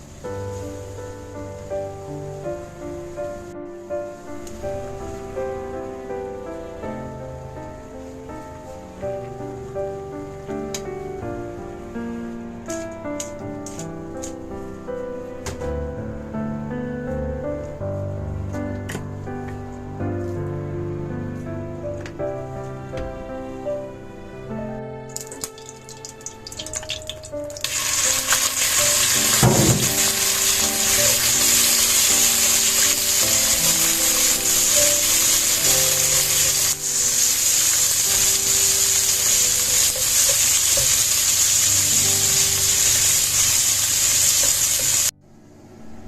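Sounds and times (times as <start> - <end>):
food sizzling in hot oil: 26.4 - 45.1
low knock: 29.4 - 30.2.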